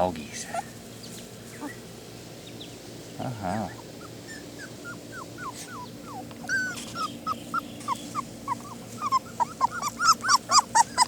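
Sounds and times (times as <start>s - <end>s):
puppies whimpering: 0.4s - 0.8s, 1.5s - 1.9s, 3.3s - 11.0s.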